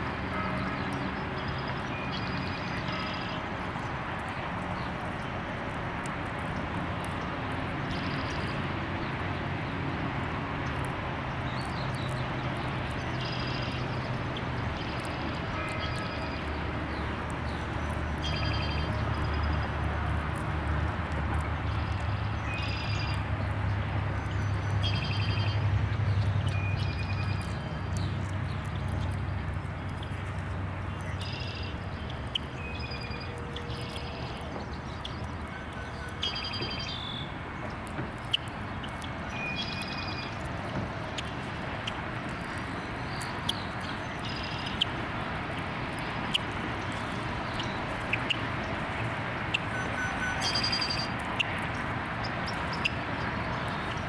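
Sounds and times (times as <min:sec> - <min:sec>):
outdoor background noise: 0:00.0 - 0:54.0
birds chirping: 0:24.2 - 0:54.0.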